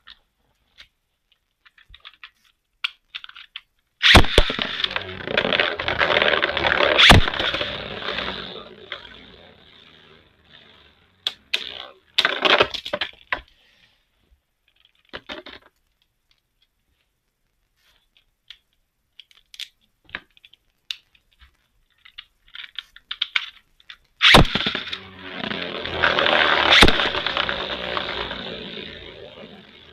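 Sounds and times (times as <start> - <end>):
plastic clicks and rattles: 0.0 - 8.3, 11.2 - 13.6, 14.6 - 16.8, 18.1 - 25.0
spinning tops whirring scrape: 4.0 - 12.9, 24.2 - 29.9
spinning top launch: 4.0 - 13.1, 24.2 - 29.9.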